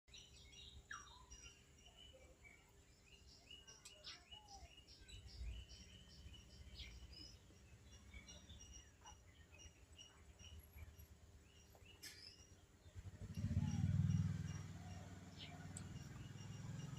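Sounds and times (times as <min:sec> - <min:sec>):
small birds chirping: 0:00.1 - 0:16.9
low outdoor rumble: 0:04.3 - 0:16.9.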